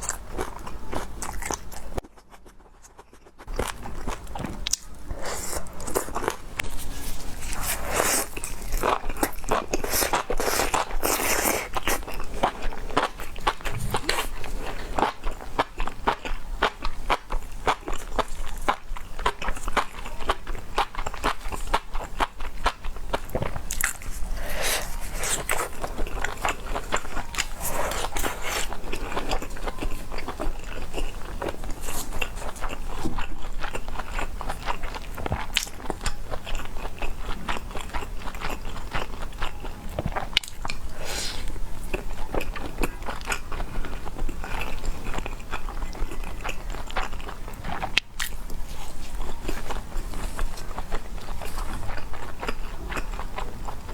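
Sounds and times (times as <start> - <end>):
person chewing crunchy food: 0.0 - 53.9.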